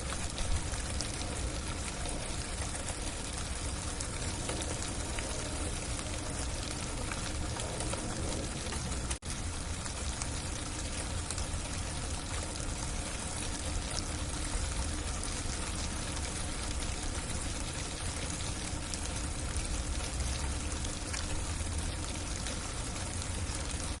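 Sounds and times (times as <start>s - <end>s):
heavy freezing rain patter: 0.0s - 24.0s.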